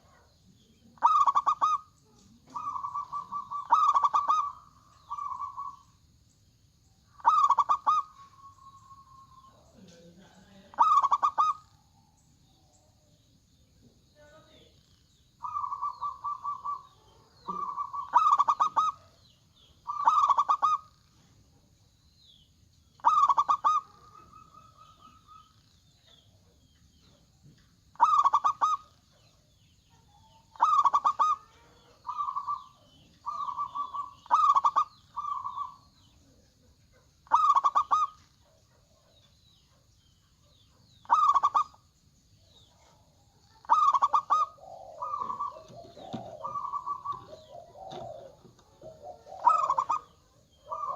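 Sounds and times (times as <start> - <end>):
dove cooing: 0.0 - 6.0, 7.1 - 11.8, 15.4 - 21.0, 23.0 - 27.2, 27.9 - 39.2, 40.5 - 41.8, 42.6 - 50.9.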